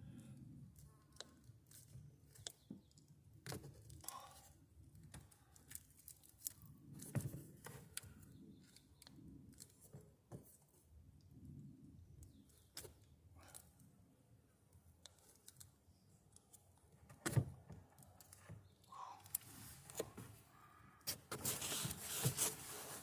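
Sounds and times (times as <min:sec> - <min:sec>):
light rustling of handling: 0:15.0 - 0:23.0.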